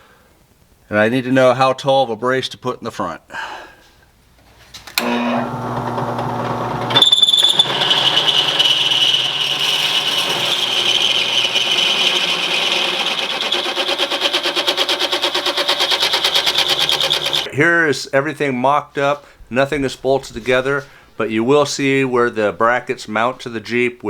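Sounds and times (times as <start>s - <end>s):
electric saw cutting wood: 5.0s - 17.5s.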